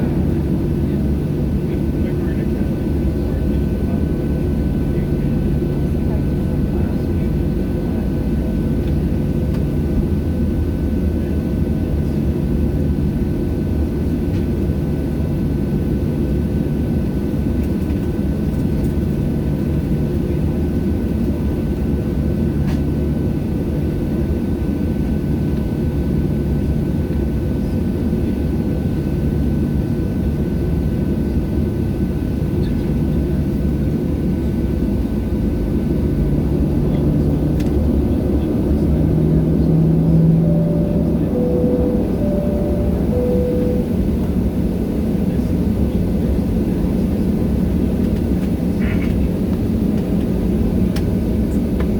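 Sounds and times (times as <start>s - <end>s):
jet engine low rumble: 32.8s - 45.4s
thin steady whine: 39.3s - 44.4s.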